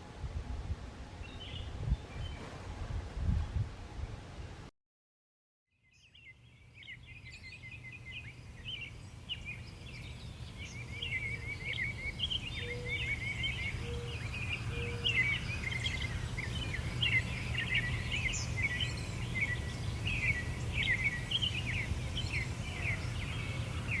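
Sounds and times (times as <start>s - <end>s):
small birds chirping: 5.9s - 24.0s.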